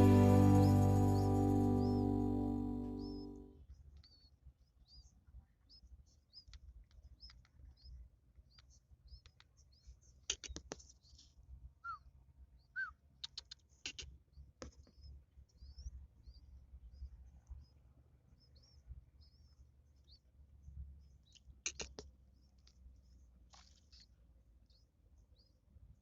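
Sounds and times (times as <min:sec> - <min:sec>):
nestlings begging chirps: 0:00.0 - 0:03.4.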